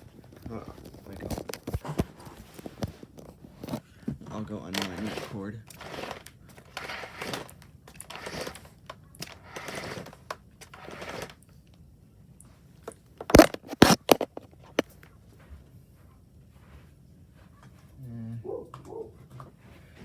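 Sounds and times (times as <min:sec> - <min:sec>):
vacuum cord being pulled out: 0:04.7 - 0:11.4, 0:13.2 - 0:14.8.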